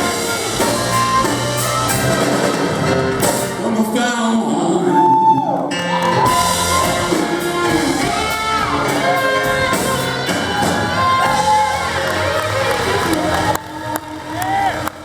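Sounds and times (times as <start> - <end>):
live rock band: 0.0 - 15.0
person singing: 3.4 - 15.0.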